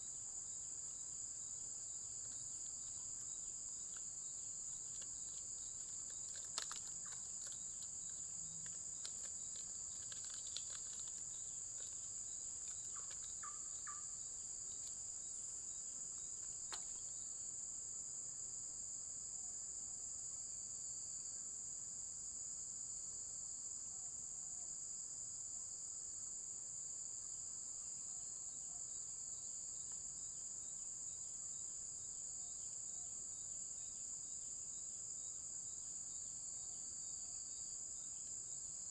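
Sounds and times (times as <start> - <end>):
insects trilling: 0.0 - 21.5, 22.8 - 38.9
faint clicks: 2.2 - 14.0.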